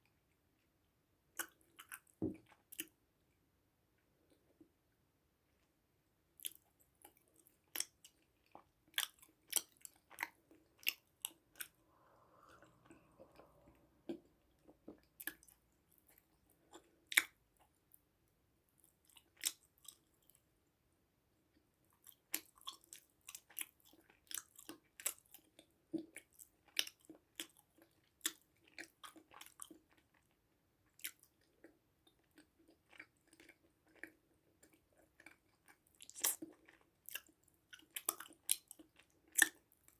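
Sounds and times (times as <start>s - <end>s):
crisp crunches of chewing: 22.0s - 39.7s.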